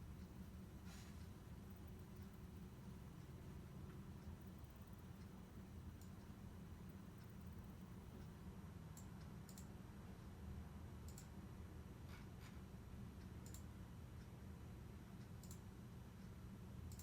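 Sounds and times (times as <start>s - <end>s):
low steady hum: 0.0s - 17.0s
faint sharp clicks: 11.1s - 11.3s.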